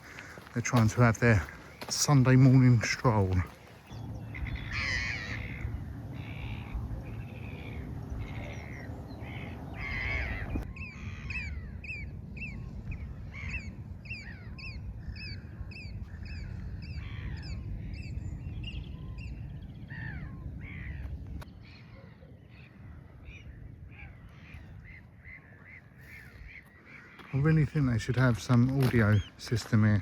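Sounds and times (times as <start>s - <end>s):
birds squawking and calling: 0.0s - 30.0s
wind noise on microphone: 3.8s - 21.6s.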